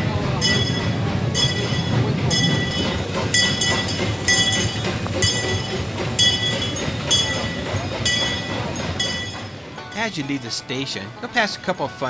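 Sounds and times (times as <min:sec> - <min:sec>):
steam train rumbling on track: 0:00.0 - 0:12.0
metallic ringing: 0:00.4 - 0:12.0.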